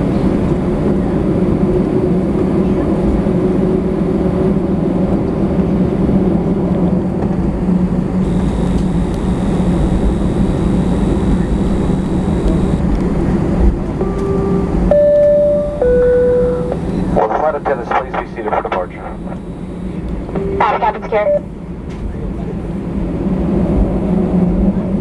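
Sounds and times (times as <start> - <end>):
airplane cabin drone: 0.0 - 25.0
faint high whine: 8.2 - 21.6.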